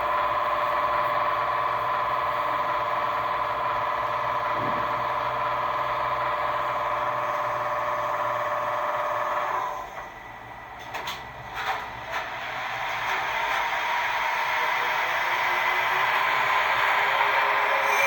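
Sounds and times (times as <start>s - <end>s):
model train motor whine: 0.0s - 10.6s, 12.3s - 18.0s.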